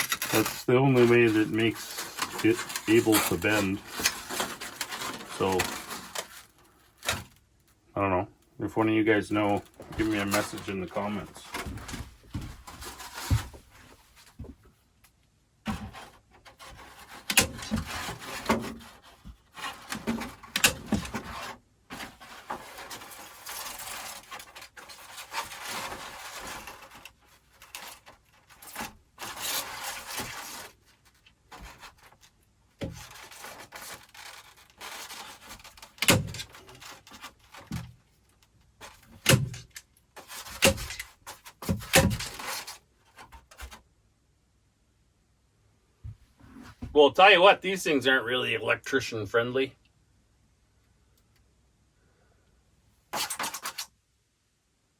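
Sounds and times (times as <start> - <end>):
styrofoam scraping against wood: 0.0 - 7.3, 9.4 - 11.8, 12.4 - 14.3, 15.6 - 38.0, 38.8 - 43.8, 53.1 - 53.9.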